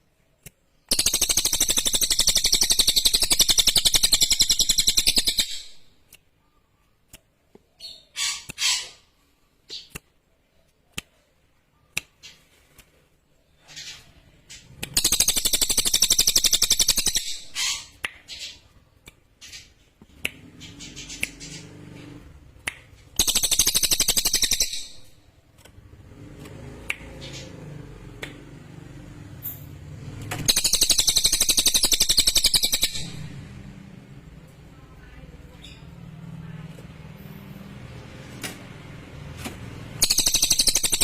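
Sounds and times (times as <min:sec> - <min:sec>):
bird chirps: 0:00.7 - 0:12.6, 0:13.3 - 0:26.0, 0:29.0 - 0:36.6, 0:39.9 - 0:41.0
songbird rattling trills: 0:15.0 - 0:17.9, 0:23.1 - 0:25.0, 0:30.5 - 0:33.1, 0:40.0 - 0:41.0.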